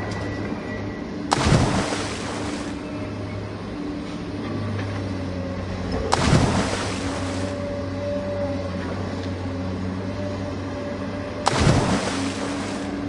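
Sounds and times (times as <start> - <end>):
low engine drone: 0.0 - 13.0
loud water splashes: 1.3 - 2.8, 6.1 - 7.6, 11.4 - 13.0.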